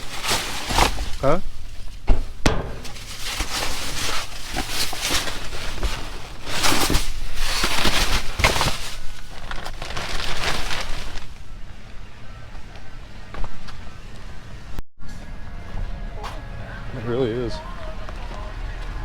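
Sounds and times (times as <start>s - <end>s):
trash bags rustling and crinkling: 0.0s - 12.0s.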